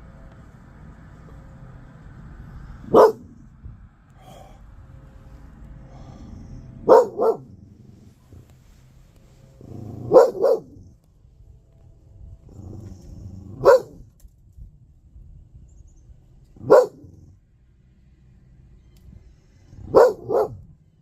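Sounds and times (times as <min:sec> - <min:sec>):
dog barking: 0:02.8 - 0:03.4, 0:06.8 - 0:07.6, 0:09.8 - 0:10.9, 0:13.5 - 0:14.0, 0:16.6 - 0:17.2, 0:19.8 - 0:20.6.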